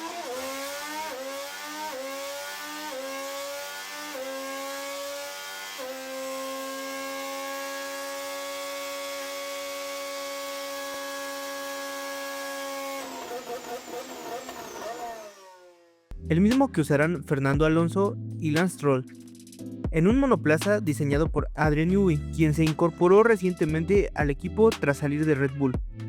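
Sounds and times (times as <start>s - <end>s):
racing car engine at high revs: 0.0s - 10.7s, 13.0s - 15.8s.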